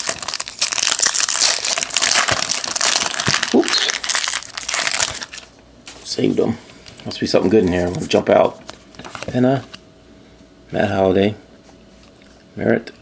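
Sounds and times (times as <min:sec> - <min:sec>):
wrapper crinkling: 0:00.0 - 0:05.6.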